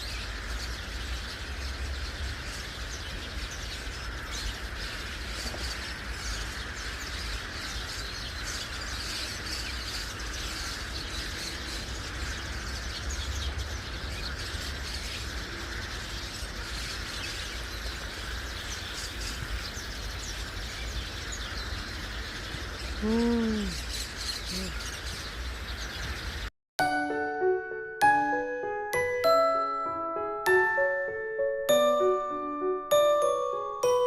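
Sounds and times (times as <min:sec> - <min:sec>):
flock of birds chirping: 0:00.0 - 0:26.5.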